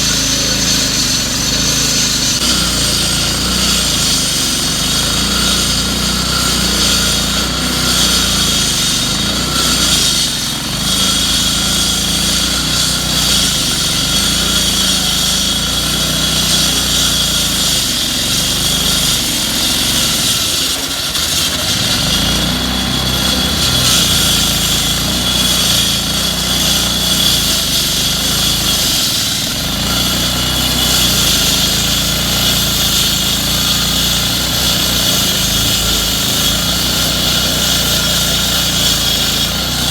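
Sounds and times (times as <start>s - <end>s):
machinery engine running: 0.0s - 7.9s.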